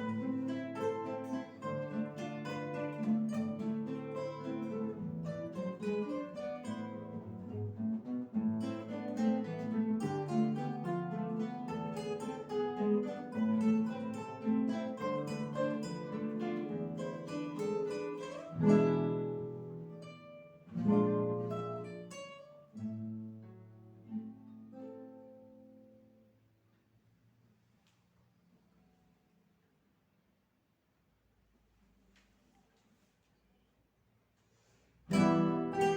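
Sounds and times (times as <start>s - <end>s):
guitar ensemble playing: 0.0s - 26.3s, 35.1s - 35.9s.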